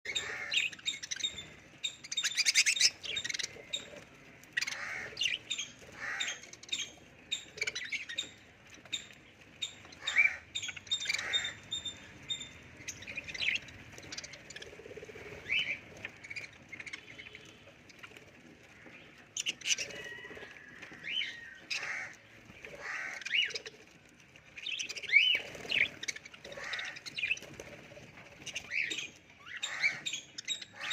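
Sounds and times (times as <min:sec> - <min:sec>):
budgerigars chirping: 0:00.1 - 0:18.2, 0:24.6 - 0:27.8, 0:28.4 - 0:30.9.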